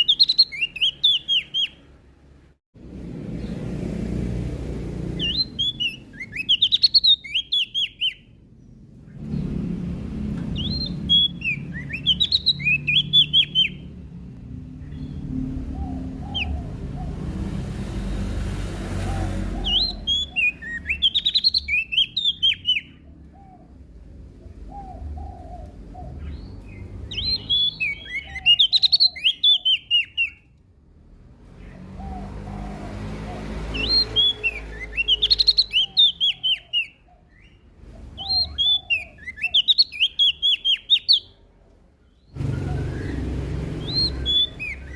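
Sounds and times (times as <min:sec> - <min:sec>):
bird chirping rapid high notes: 0:00.0 - 0:01.9, 0:05.1 - 0:08.4, 0:10.5 - 0:14.0, 0:33.8 - 0:36.9, 0:42.4 - 0:44.9.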